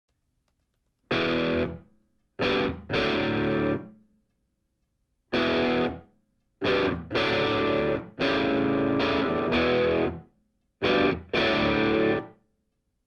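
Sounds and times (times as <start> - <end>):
distorted electric guitar chord stabs: 1.1 - 1.8, 2.4 - 3.9, 5.4 - 6.0, 6.6 - 10.2, 10.8 - 12.3.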